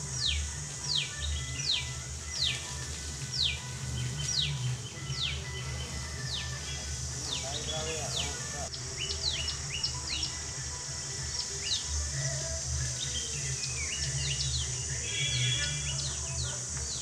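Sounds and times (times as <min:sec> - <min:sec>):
small birds chirping: 0:00.0 - 0:17.0
steady high hiss: 0:00.0 - 0:17.0.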